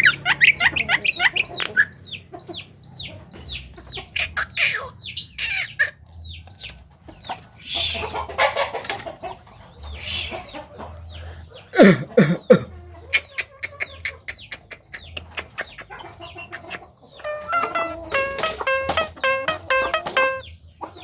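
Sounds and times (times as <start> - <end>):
bird chirps and clucking: 0.0 - 21.0
loud falling bird squawks: 17.2 - 20.5.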